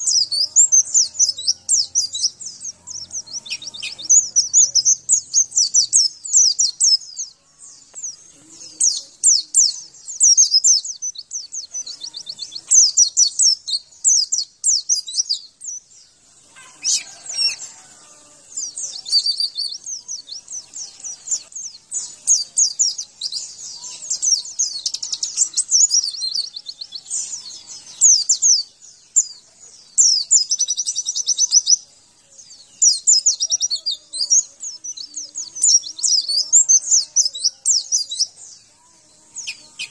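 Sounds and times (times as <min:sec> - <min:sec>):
high-pitched bird twittering trills: 0:00.0 - 0:15.9, 0:16.5 - 0:31.9, 0:32.5 - 0:39.9.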